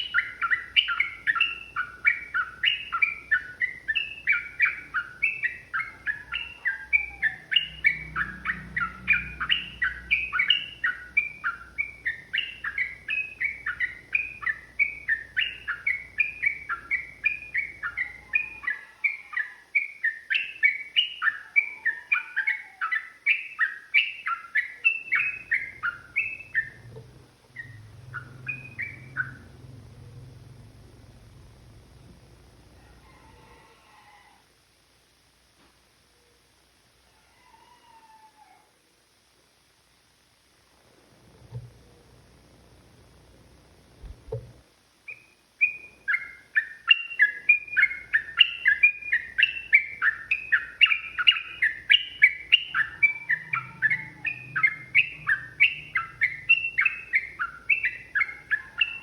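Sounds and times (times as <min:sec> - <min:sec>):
bird singing chattering notes: 0:00.0 - 0:31.1, 0:45.1 - 0:59.0.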